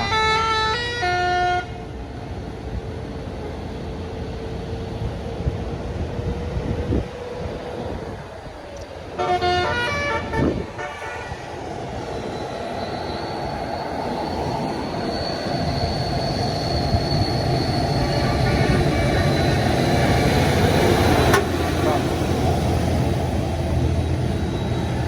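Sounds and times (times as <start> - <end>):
musical air horn: 9.2 - 11.4
diesel engine approaching: 13.3 - 25.0.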